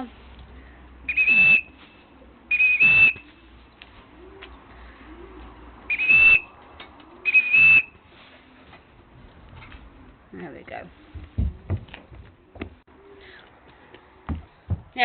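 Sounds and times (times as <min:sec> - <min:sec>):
whistle short blasts: 0:01.1 - 0:01.7, 0:02.5 - 0:03.2, 0:05.9 - 0:06.4, 0:07.3 - 0:08.0.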